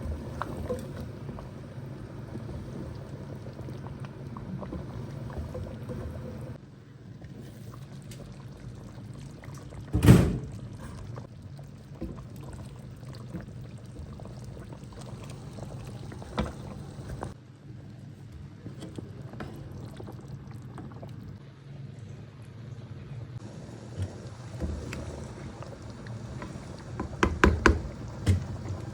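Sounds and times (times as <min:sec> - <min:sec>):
knock: 0:27.0 - 0:28.4.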